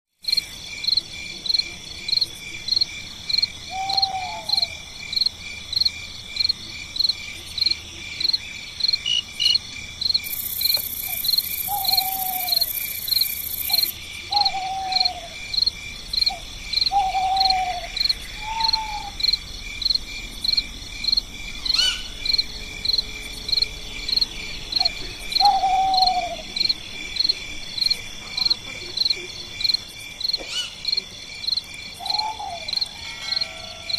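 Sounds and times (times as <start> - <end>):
high insect drone: 0.2 - 33.9
insects chirping: 0.2 - 33.9
low falling hoot-like call: 16.9 - 19.2.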